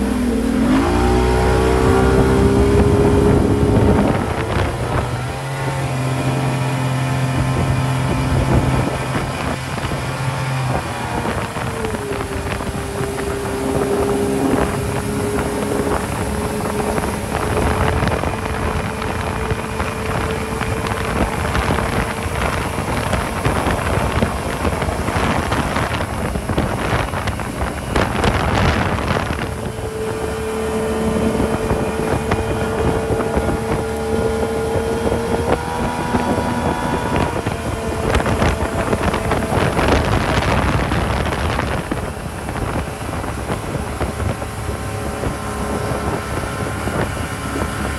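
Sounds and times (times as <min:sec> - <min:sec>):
motorboat engine running: 0:00.0 - 0:47.9
wind buffeting microphone: 0:00.0 - 0:47.9.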